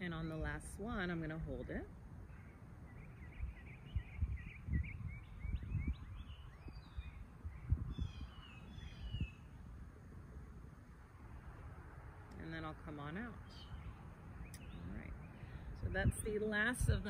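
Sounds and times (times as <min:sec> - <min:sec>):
songbirds chirping: 0:00.0 - 0:17.0
wind rumbling on microphone: 0:00.0 - 0:17.0
whistled bird calls: 0:02.3 - 0:09.6.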